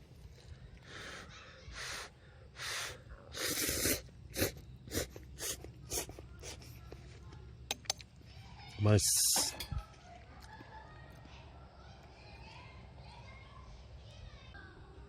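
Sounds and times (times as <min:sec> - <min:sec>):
person slurping noodles: 0:02.8 - 0:06.6.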